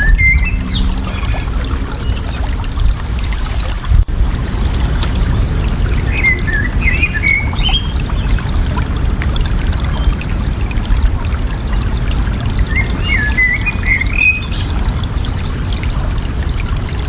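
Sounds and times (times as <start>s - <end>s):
small bird singing: 0.0s - 1.4s, 6.0s - 8.3s
running water splashing: 0.0s - 17.0s.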